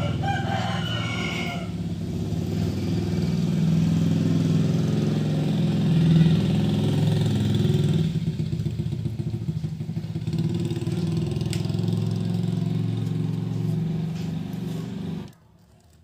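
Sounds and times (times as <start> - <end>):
engine idling: 7.2 - 15.4.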